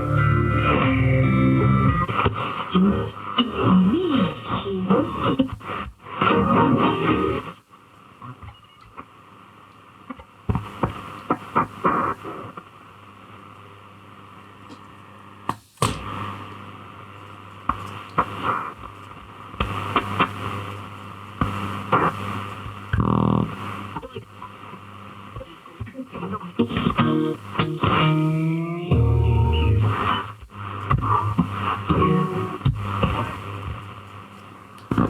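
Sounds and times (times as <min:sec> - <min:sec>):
radio static hiss: 0:00.0 - 0:35.0
static clicks and crashes: 0:01.9 - 0:03.4, 0:10.0 - 0:12.8, 0:14.6 - 0:35.0
snatches of radio signal: 0:10.5 - 0:13.6, 0:17.7 - 0:28.5, 0:29.8 - 0:35.0.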